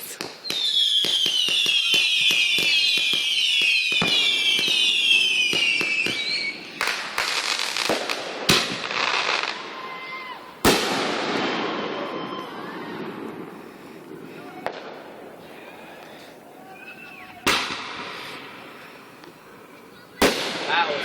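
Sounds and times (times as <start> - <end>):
firework bangs: 0.0 - 16.0, 16.8 - 19.1, 20.0 - 21.0
fireworks crackling pops: 0.0 - 16.3, 17.0 - 21.0
firework whistles falling in pitch: 0.4 - 6.6.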